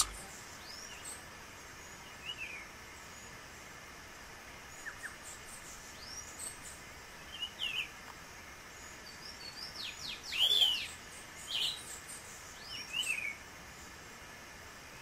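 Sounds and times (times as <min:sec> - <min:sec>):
faint background hiss: 0:00.0 - 0:15.0
birds chirping and whistling: 0:09.1 - 0:12.0.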